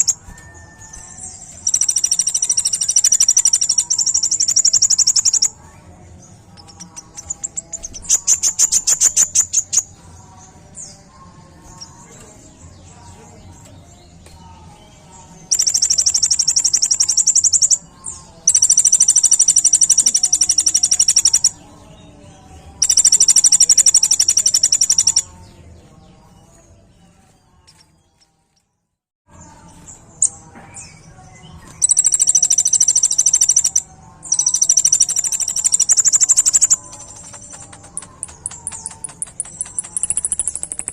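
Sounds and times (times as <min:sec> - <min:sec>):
bird high-pitched trilling: 0:00.0 - 0:05.6, 0:06.6 - 0:09.9, 0:15.5 - 0:21.6, 0:22.8 - 0:25.3, 0:31.7 - 0:40.9.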